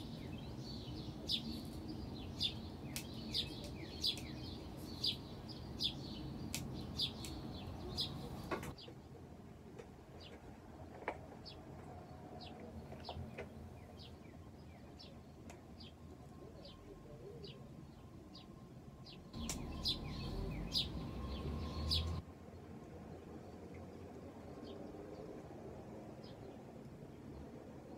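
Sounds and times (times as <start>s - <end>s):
bird chirping: 0.0s - 9.0s, 19.1s - 22.2s.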